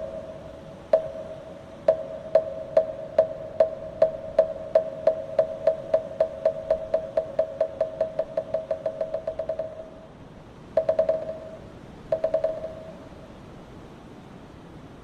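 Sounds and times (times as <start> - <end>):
wind hiss: 0.0 - 15.0
wooden fish drum roll: 1.0 - 9.9, 10.8 - 12.9.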